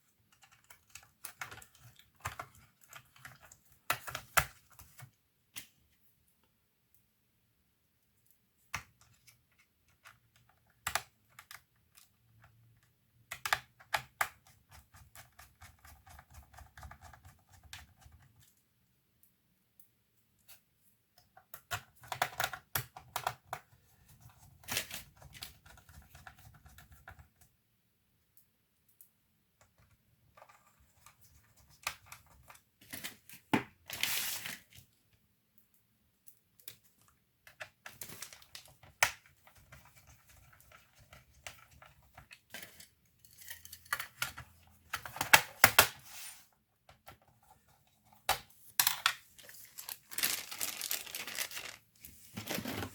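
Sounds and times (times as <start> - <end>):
typing on laptop keyboard: 0.3 - 5.1, 9.9 - 18.5, 21.6 - 23.6, 25.2 - 27.5.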